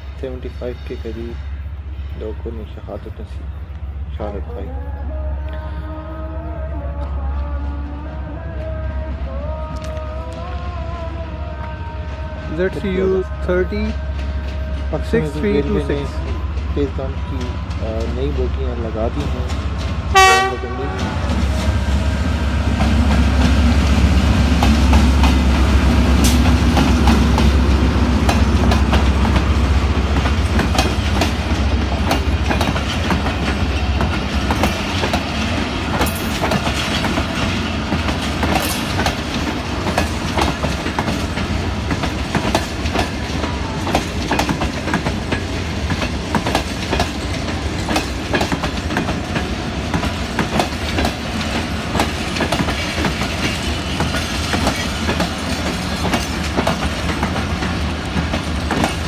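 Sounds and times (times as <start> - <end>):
diesel locomotive engine rumble: 0.0 - 59.0
wheels clacking over rail joints: 22.7 - 59.0.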